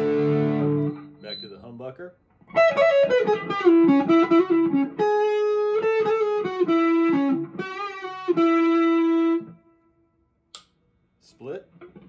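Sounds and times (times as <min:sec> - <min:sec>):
electric guitar melody: 0:00.0 - 0:01.2, 0:02.4 - 0:09.9.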